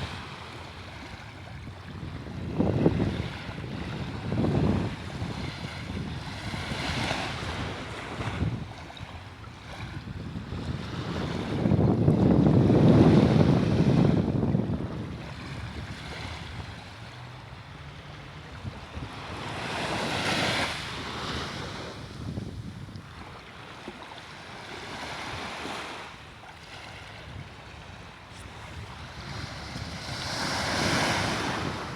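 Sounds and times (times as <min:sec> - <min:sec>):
wind rumbling on microphone: 0:00.0 - 0:23.4, 0:24.8 - 0:31.9
sea waves washing: 0:23.1 - 0:31.9.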